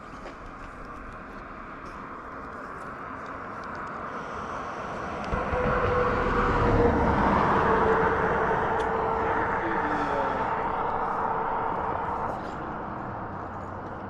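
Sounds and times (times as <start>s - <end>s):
engine passing close by: 4.1s - 14.0s.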